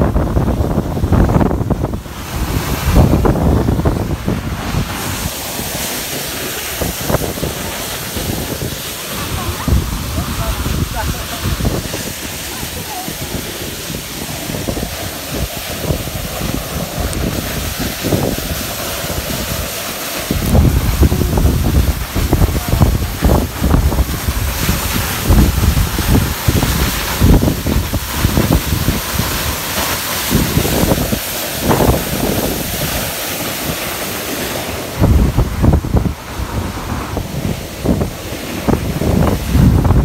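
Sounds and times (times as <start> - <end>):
waterfall rushing: 0.0 - 40.0
wind buffeting microphone: 0.0 - 40.0.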